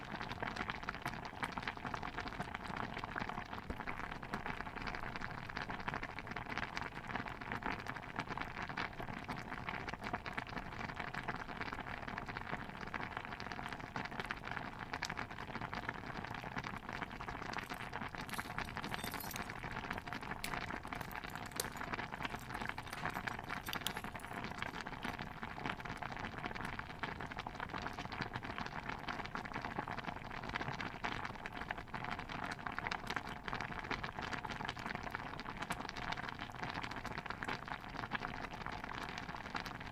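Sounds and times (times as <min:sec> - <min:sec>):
stew bubbling in a cauldron: 0:00.0 - 0:39.9.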